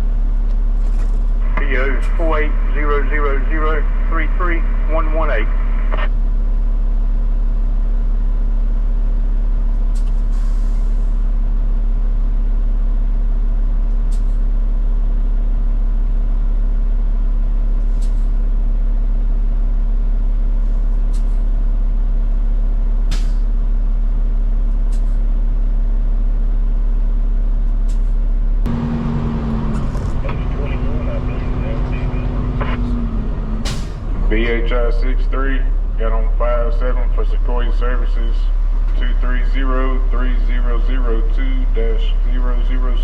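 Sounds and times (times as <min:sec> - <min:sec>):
truck diesel engine idling: 0:28.5 - 0:43.0.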